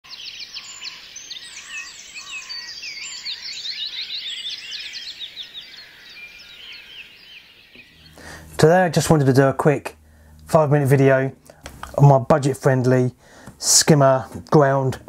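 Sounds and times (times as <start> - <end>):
birds singing: 0.1 - 9.3.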